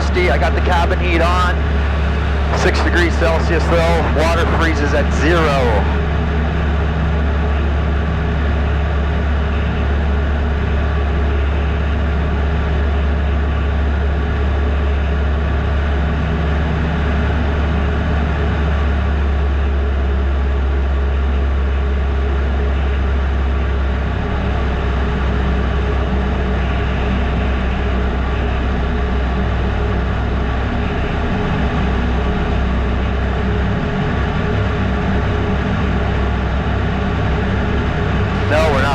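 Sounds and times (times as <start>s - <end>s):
airflow noise: 0.0s - 6.1s, 38.2s - 38.9s
propeller plane engine droning: 0.0s - 38.9s.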